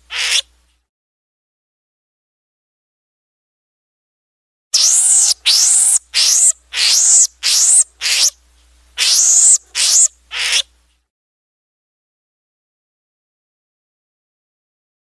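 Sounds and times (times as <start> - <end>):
animal harsh rasping calls: 0.1 - 0.5, 4.8 - 8.4, 9.0 - 10.7.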